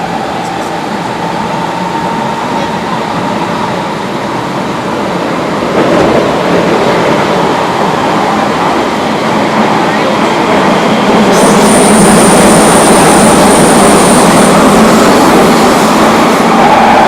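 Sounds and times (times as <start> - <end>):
train wheels rumbling on rails: 0.0 - 17.0
high-pitched wheel squeal: 16.2 - 17.0.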